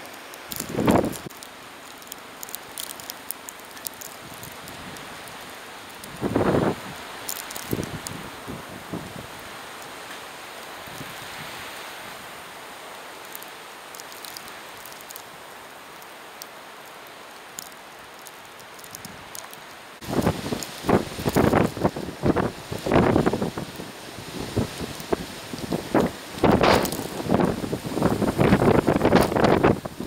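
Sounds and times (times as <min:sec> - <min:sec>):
snowstorm wind blowing: 0:00.0 - 0:01.4, 0:04.0 - 0:16.4, 0:20.0 - 0:30.0
faint ticks: 0:00.0 - 0:06.2, 0:07.2 - 0:08.2, 0:13.2 - 0:15.3, 0:15.9 - 0:21.7
wind gust buffeting microphone: 0:06.1 - 0:07.0, 0:20.0 - 0:30.0.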